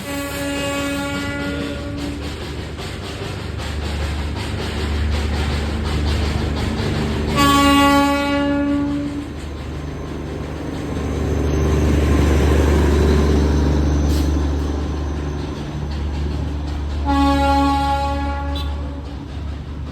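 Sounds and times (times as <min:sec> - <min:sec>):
train whistle blast: 0:00.0 - 0:02.2, 0:07.3 - 0:09.2, 0:17.0 - 0:19.0
locomotive rumble: 0:00.0 - 0:19.9.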